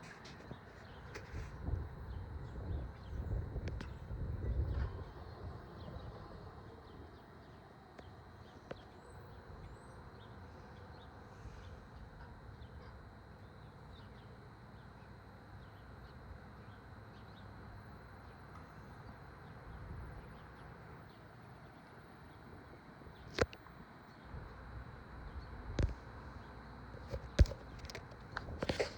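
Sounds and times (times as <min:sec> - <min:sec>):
wind on microphone: 0:01.1 - 0:06.8.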